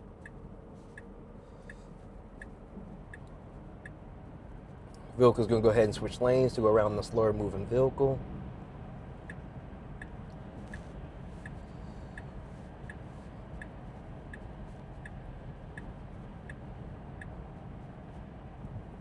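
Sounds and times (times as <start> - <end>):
low road rumble: 0.0 - 19.0
turn signal ticking: 0.1 - 4.1, 9.1 - 19.0.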